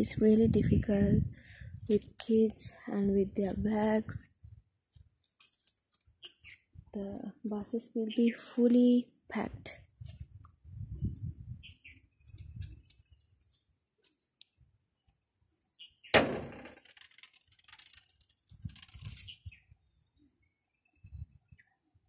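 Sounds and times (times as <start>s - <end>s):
birds chirping: 5.7s - 6.8s, 10.2s - 16.2s
sharp crack: 16.1s - 18.1s.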